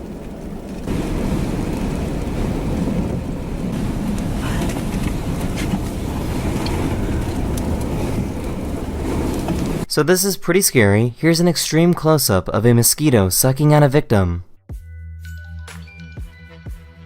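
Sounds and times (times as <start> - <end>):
wind rumbling on microphone: 0.0 - 9.9.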